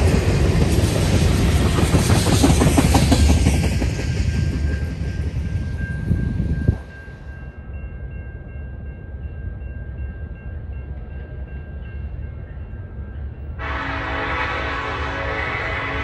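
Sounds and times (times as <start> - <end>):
freight train rumble: 0.0 - 16.0
music: 5.4 - 13.6.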